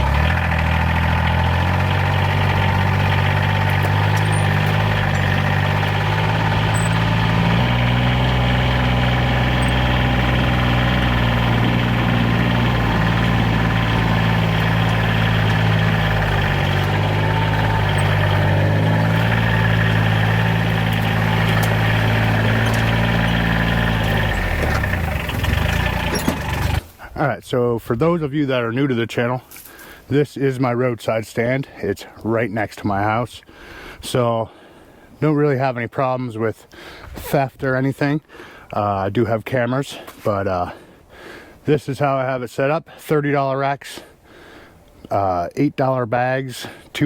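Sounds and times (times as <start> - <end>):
utility vehicle engine running: 0.0 - 26.9.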